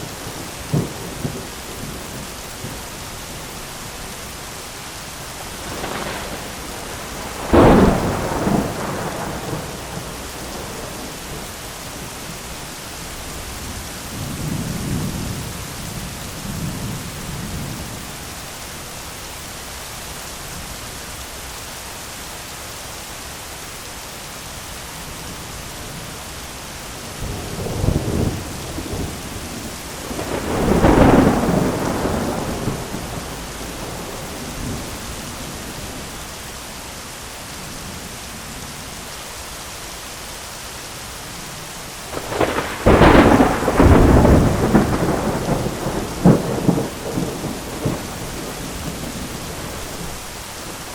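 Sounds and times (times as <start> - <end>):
heavy rain on an umbrella: 0.0 - 50.9
thunder: 5.6 - 11.5, 27.2 - 35.7, 42.1 - 50.2.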